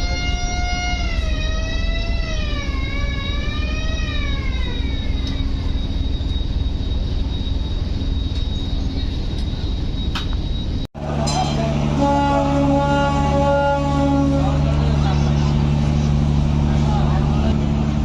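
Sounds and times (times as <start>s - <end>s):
boat horn: 0.0s - 5.3s, 11.0s - 16.3s
low engine rumble: 0.0s - 18.0s.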